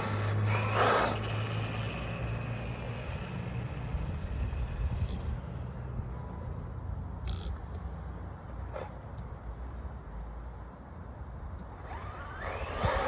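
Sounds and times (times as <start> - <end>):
rc truck rumble: 0.0 - 8.0, 11.6 - 13.0
rc truck low hum: 0.0 - 13.0.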